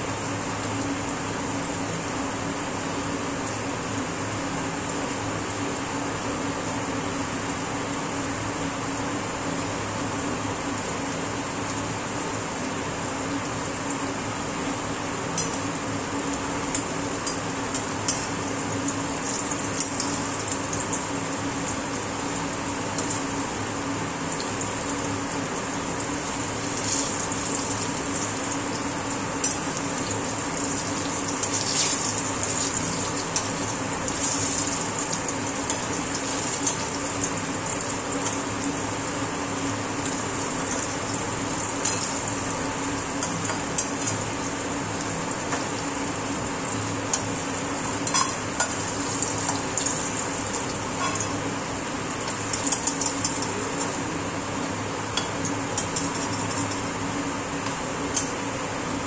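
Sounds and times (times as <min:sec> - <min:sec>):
vegetable slices sizzling in oil: 0:15.3 - 0:57.1.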